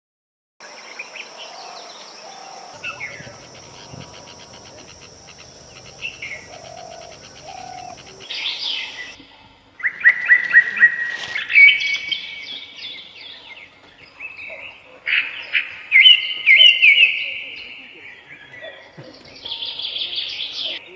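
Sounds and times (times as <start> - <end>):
whistled birdsong: 0.8 - 20.9
birds chirping and calling: 1.4 - 9.2.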